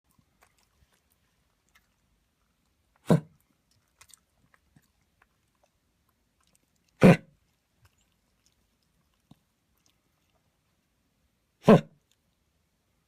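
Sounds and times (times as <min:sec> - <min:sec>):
dog coughing: 0:03.0 - 0:03.4, 0:07.0 - 0:07.4, 0:11.6 - 0:12.0.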